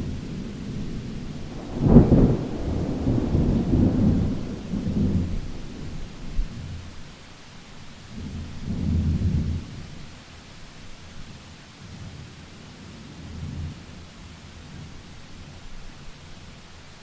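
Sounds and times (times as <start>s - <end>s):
steady rain: 0.0s - 17.0s
thunder clap and rumble: 0.7s - 6.9s.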